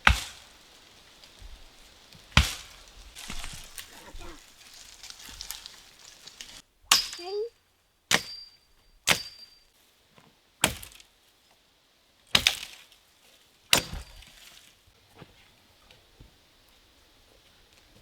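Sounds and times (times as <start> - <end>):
tool chopping into wood: 0.0 - 0.5, 2.3 - 4.3, 6.9 - 7.3, 8.1 - 8.4, 9.1 - 9.4, 10.6 - 11.0, 12.4 - 12.8, 13.7 - 14.3.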